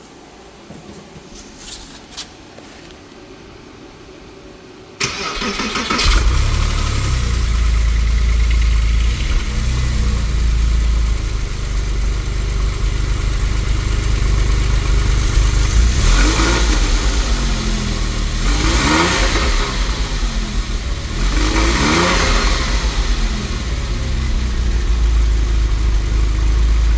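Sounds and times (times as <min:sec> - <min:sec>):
car engine starting and idling: 0:05.0 - 0:26.9.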